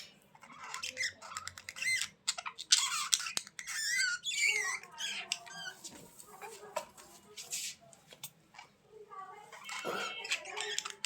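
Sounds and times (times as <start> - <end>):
budgerigars chattering and squawking: 0.0 - 5.9, 9.5 - 11.0.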